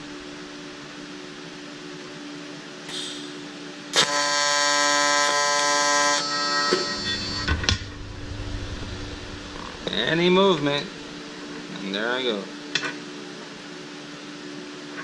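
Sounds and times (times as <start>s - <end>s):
welding arc buzzing: 3.9s - 11.6s.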